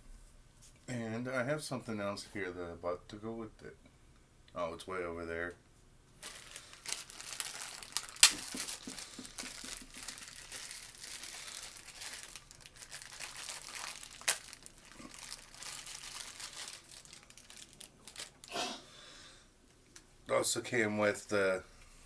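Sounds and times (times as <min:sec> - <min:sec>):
packaging crinkling and rustling: 0:06.2 - 0:18.5
packaging snapping: 0:06.2 - 0:18.5.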